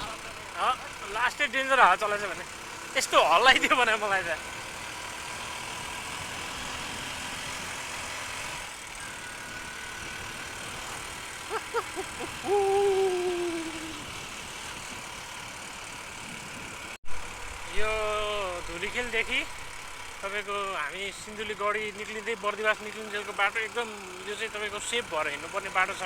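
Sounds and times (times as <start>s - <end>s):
motorcycle engine and road noise: 0.0s - 26.0s.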